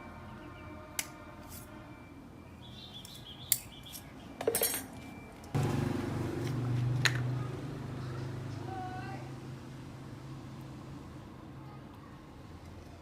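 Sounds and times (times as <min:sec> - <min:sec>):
small metal parts clinking: 0:04.4 - 0:05.0.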